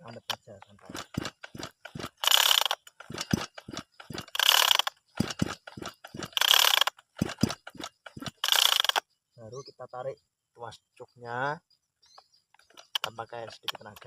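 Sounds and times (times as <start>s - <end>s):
chainsaw recoil starter pulls: 0.0s - 9.0s, 12.6s - 14.0s
ratchet clicks: 0.0s - 9.0s, 12.6s - 14.0s.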